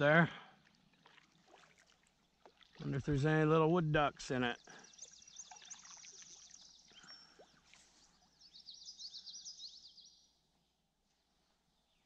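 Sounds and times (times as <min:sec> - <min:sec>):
small songbird chirping: 0:04.4 - 0:12.0.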